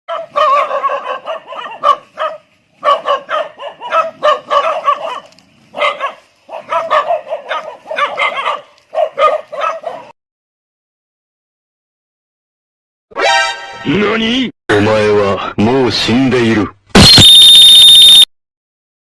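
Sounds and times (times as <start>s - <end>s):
dog barking and yapping: 0.1s - 10.2s.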